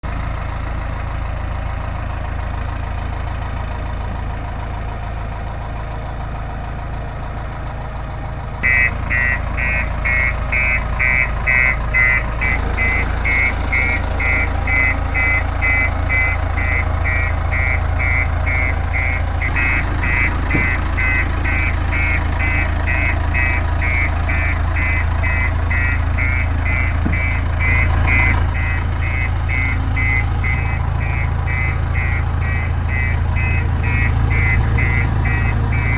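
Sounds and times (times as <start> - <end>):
diesel engine running: 0.0 - 35.9
rapid electronic beeping alarm: 8.6 - 35.9.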